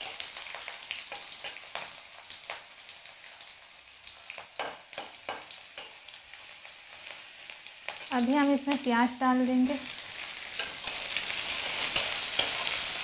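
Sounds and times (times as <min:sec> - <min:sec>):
garlic sizzling in hot oil: 0:00.0 - 0:13.0
metal spatula scraping a pan: 0:10.0 - 0:13.0.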